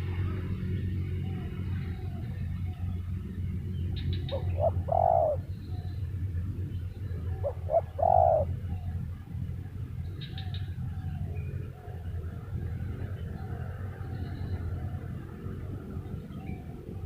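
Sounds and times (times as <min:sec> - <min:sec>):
steady low hum: 0:00.0 - 0:17.0
dove cooing: 0:03.9 - 0:06.0, 0:07.1 - 0:09.0.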